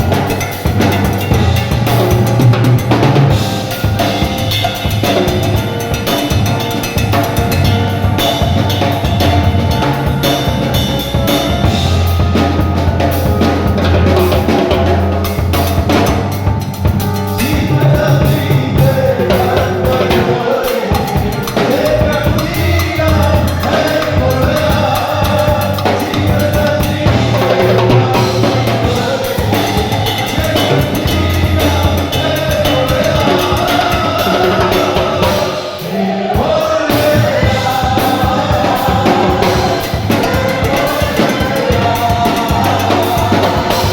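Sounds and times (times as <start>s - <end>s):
drum kit beat: 0.0s - 43.9s
voices singing: 0.0s - 43.9s
worship band playing: 0.0s - 43.9s.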